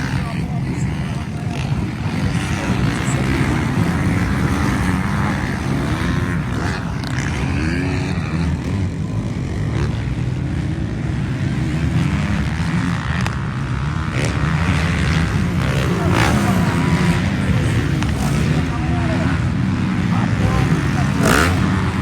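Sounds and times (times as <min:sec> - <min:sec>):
motocross bike engines revving: 0:00.0 - 0:22.0.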